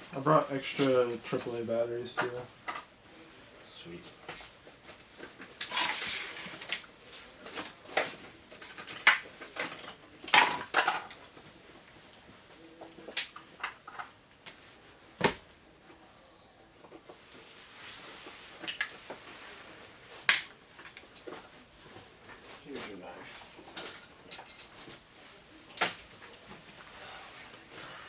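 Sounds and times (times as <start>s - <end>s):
clinks of metal and plastic items: 5.2s - 12.1s, 18.6s - 19.0s, 23.2s - 25.0s, 25.7s - 26.2s.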